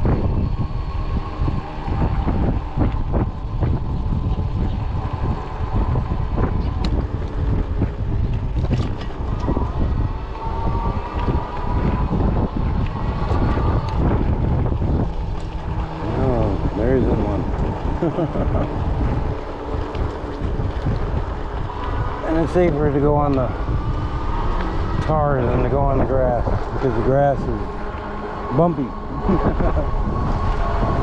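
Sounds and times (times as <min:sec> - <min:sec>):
faint thin whine: 0:00.0 - 0:31.0
wind buffeting microphone: 0:00.0 - 0:31.0.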